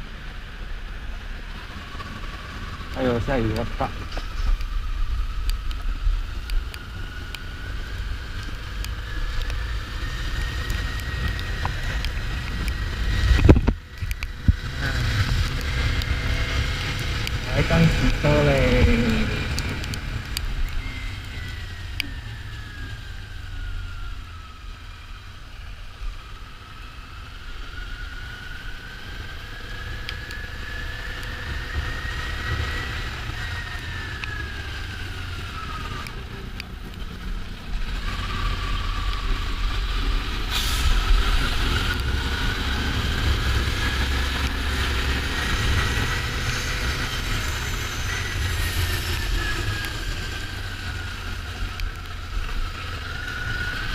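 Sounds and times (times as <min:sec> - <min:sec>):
wind rumble on microphone: 0:00.0 - 0:24.6.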